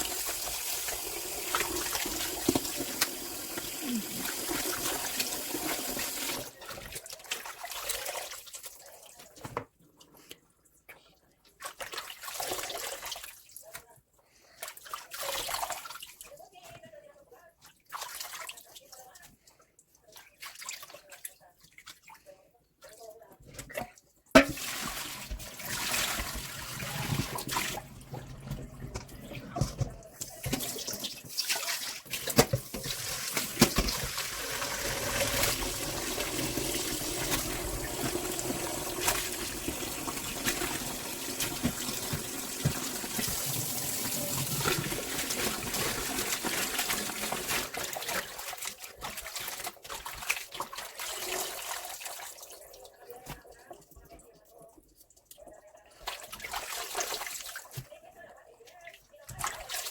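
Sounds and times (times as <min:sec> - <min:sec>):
tap water splashing in a sink: 0:00.0 - 0:09.7, 0:23.6 - 0:58.0, 0:59.2 - 0:59.9.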